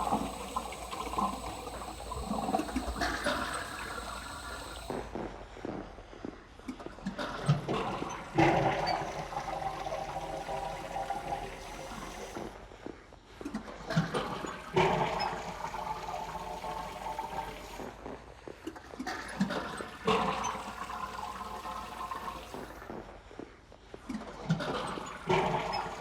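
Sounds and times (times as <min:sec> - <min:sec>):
toilet flushing: 0:00.0 - 0:05.0, 0:07.1 - 0:12.5, 0:13.9 - 0:18.0, 0:19.0 - 0:22.9, 0:24.4 - 0:26.0.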